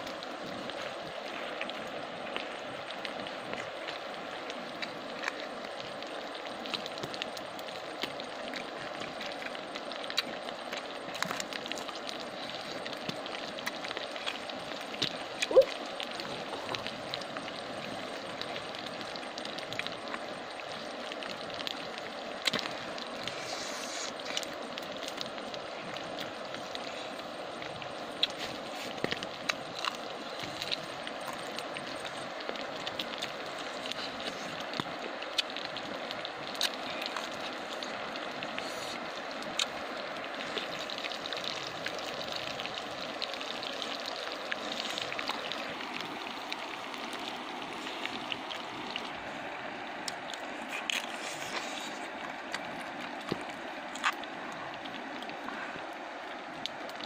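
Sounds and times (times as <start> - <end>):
chewing with crunching clicks: 0.0 - 55.9, 56.5 - 57.0
river water rushing: 20.0 - 57.0.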